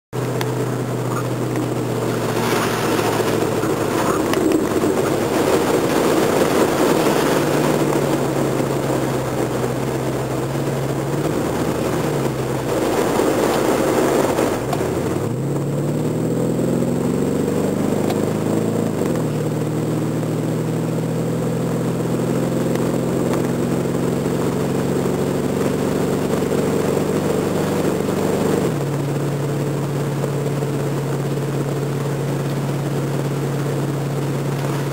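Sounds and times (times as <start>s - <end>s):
car engine running: 0.1s - 34.9s
water rushing: 0.2s - 15.2s.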